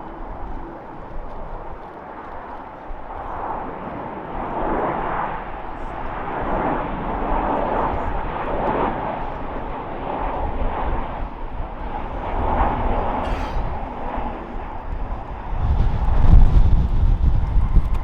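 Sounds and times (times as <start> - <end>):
jet engine roar: 0.0 - 18.0.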